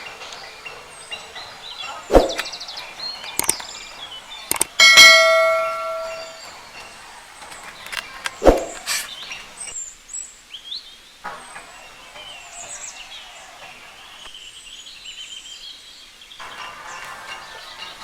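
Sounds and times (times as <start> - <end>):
outdoor background noise: 0.0 - 18.0
small birds chirping: 0.0 - 18.0
light clicks: 3.2 - 3.9, 4.5 - 4.8.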